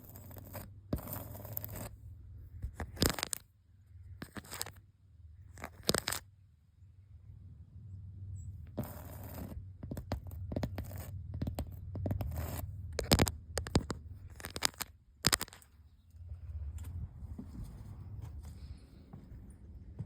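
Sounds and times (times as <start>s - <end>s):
low steady rumble: 0.0s - 20.0s
hands scraping painted wall: 8.7s - 15.6s
sharp clicks and ticks: 8.7s - 15.7s.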